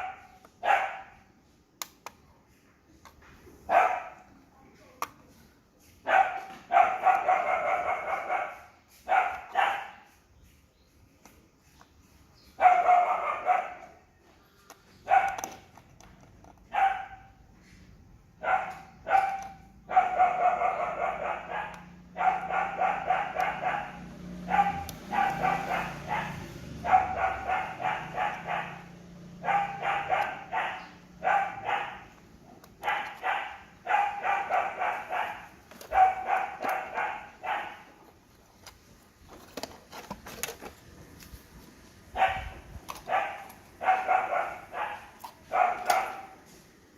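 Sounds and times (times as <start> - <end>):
dog barking: 0.0 - 1.2, 3.7 - 4.3, 6.0 - 10.2, 12.6 - 14.0, 15.0 - 15.6, 16.7 - 17.4, 18.4 - 38.0, 42.1 - 46.5.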